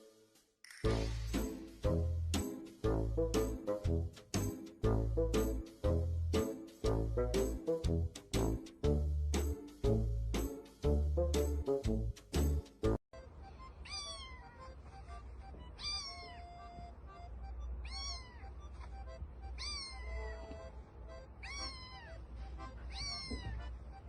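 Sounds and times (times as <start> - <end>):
cat meowing: 13.8 - 14.6, 15.8 - 16.6, 17.8 - 18.7, 19.5 - 20.5, 21.4 - 23.8.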